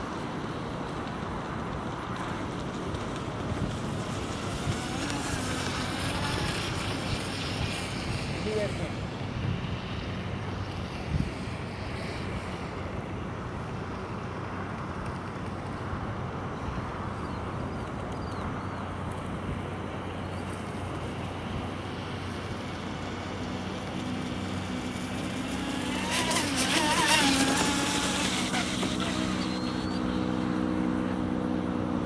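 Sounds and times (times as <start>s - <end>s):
distant traffic: 0.0s - 32.0s
wind: 0.0s - 32.0s
electric motor whine: 3.8s - 12.9s, 20.5s - 32.0s.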